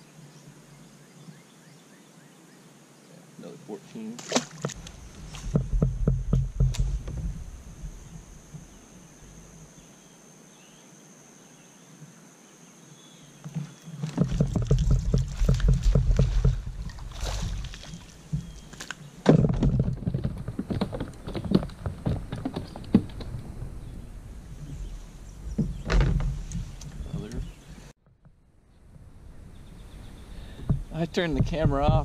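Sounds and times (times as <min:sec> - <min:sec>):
gear knocking and rubbing on kayak: 0:04.5 - 0:08.7, 0:13.4 - 0:24.0, 0:24.6 - 0:28.4, 0:30.4 - 0:32.0.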